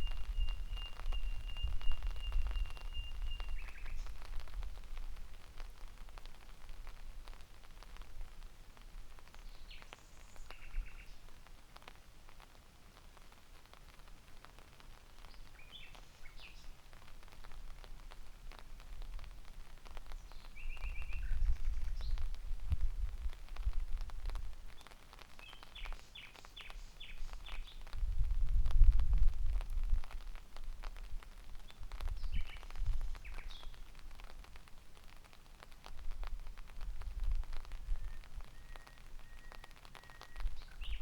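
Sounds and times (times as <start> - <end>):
nightingale singing: 0.0 - 4.3, 20.2 - 22.2, 37.8 - 41.0
raindrop ticks: 0.0 - 41.0.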